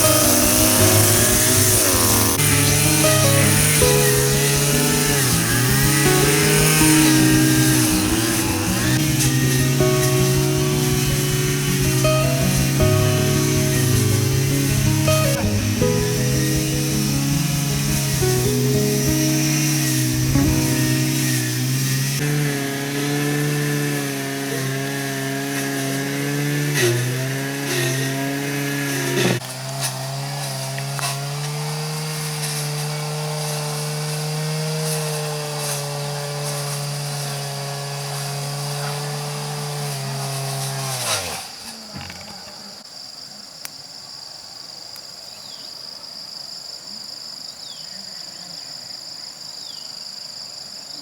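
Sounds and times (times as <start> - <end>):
high-pitched drone: 0.0 - 22.2
small petrol engine running: 0.0 - 42.7.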